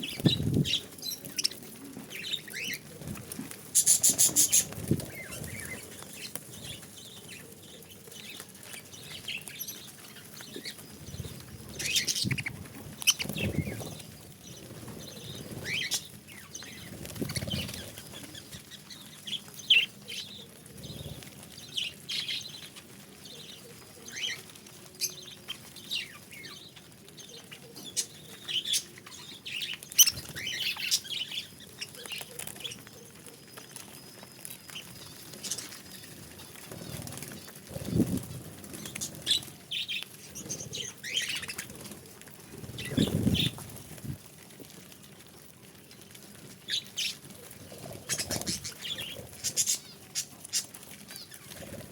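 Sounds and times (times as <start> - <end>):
wings fluttering: 0.0 - 51.9.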